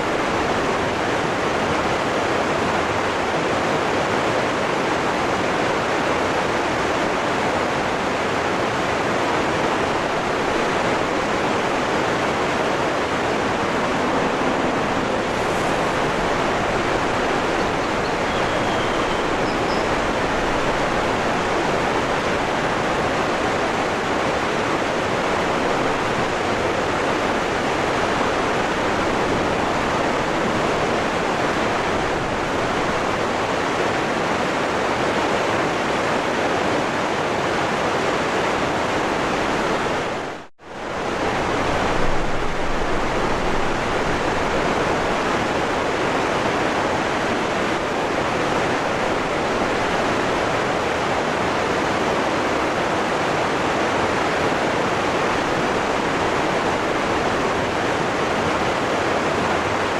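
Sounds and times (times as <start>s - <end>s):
waterfall rushing: 0.0s - 59.9s
faint high bird chirps: 17.5s - 20.2s.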